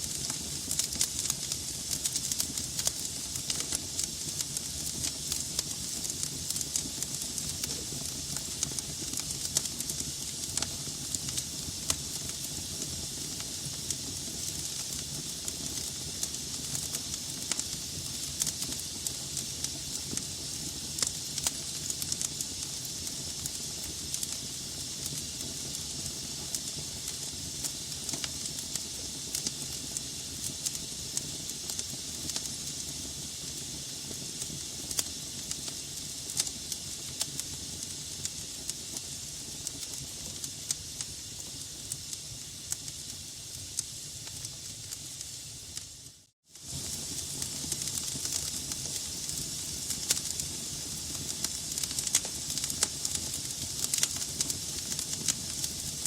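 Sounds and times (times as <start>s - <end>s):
wood fire hissing: 0.0s - 56.0s
logs popping and crackling: 51.2s - 55.8s.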